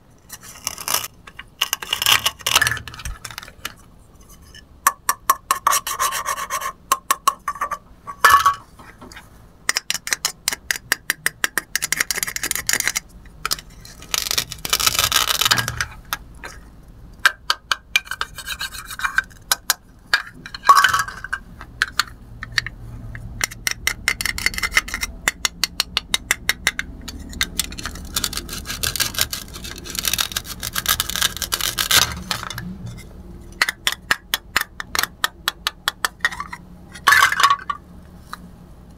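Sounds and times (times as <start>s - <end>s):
velcro tearing: 0.5s - 1.1s, 14.0s - 15.6s, 27.8s - 32.4s.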